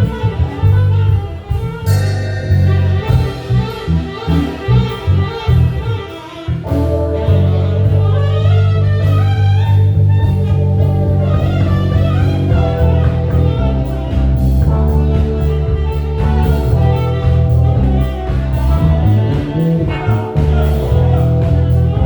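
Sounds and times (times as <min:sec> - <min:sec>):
drum kit: 0:00.0 - 0:22.0
electric bass line: 0:00.0 - 0:22.0
guitar melody: 0:01.9 - 0:22.0.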